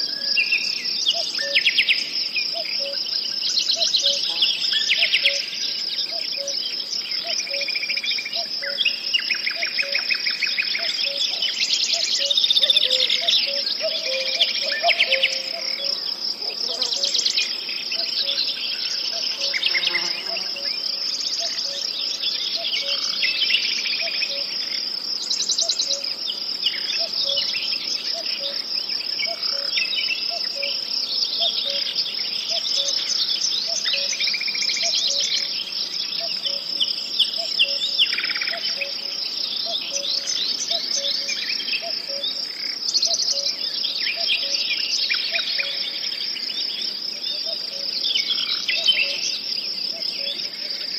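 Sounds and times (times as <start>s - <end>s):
insects trilling: 0.0s - 50.9s.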